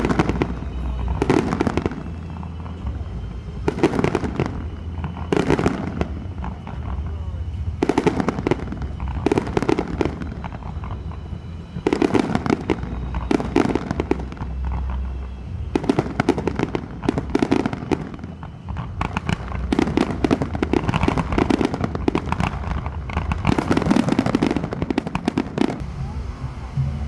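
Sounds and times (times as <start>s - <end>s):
low rumble: 0.0s - 17.3s, 25.8s - 27.0s
fireworks crackling: 0.0s - 27.0s.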